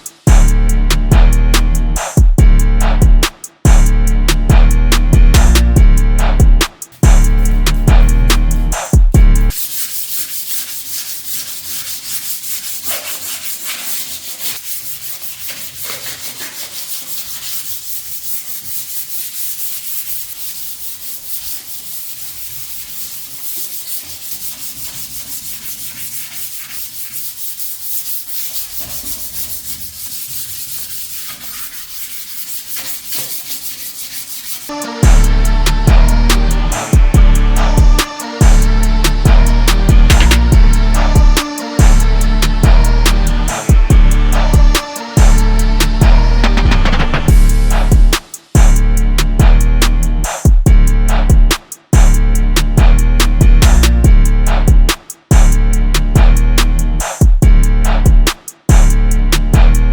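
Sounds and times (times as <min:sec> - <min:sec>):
loud music: 0:00.0 - 0:09.6, 0:34.7 - 0:59.9
hand sanding rasping strokes: 0:00.0 - 0:58.7.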